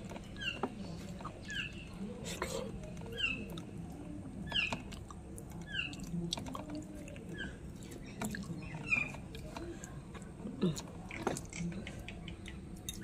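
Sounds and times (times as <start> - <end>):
bird chirping: 0.2 - 2.1, 4.4 - 4.9.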